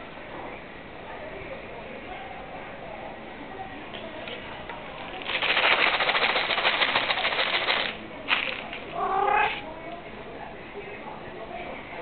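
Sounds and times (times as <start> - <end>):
rapid clatter of clicks: 5.1 - 8.8.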